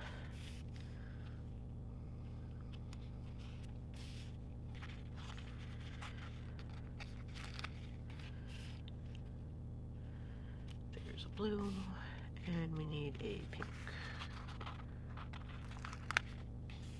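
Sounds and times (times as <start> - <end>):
steady low hum: 0.0 - 16.9
paper sticker sheets rustling: 2.8 - 9.4, 11.0 - 16.9.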